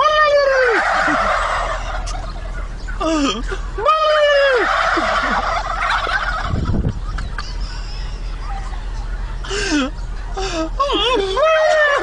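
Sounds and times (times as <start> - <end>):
man imitating turkey gobbling: 0.0 - 6.6, 10.4 - 12.0.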